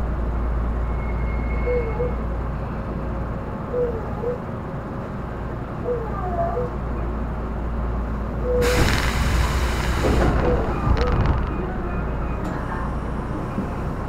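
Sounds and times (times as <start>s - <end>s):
train wheels rumbling on rails: 6.8s - 14.0s.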